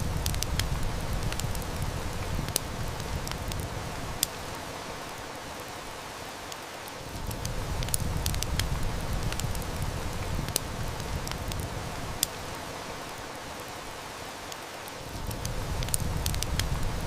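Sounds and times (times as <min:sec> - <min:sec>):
heavy rain: 0:00.0 - 0:17.0
wood fire crackling: 0:00.0 - 0:17.0.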